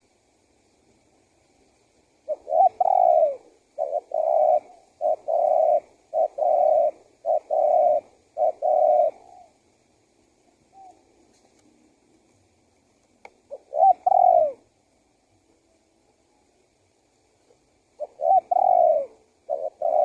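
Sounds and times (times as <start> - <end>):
dove cooing: 2.2 - 9.8, 10.4 - 11.4, 13.4 - 14.8, 17.4 - 20.0.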